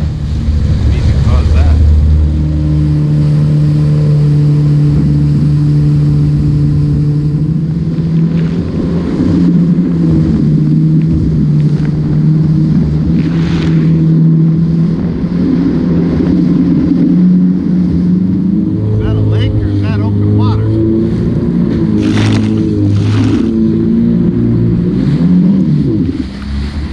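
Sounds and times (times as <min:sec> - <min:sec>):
personal watercraft engine running: 0:00.0 - 0:26.9
water splashes: 0:00.0 - 0:26.9.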